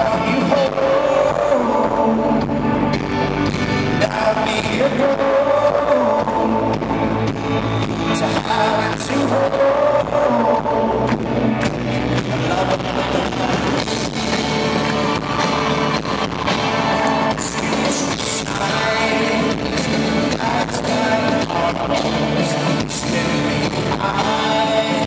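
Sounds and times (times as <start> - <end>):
live rock band playing: 0.0 - 25.0
drums beating: 11.7 - 25.0.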